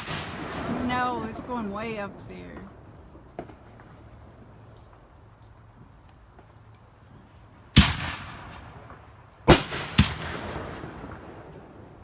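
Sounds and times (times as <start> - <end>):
fireworks bursting with loud bangs: 0.0 - 4.8, 7.7 - 12.0.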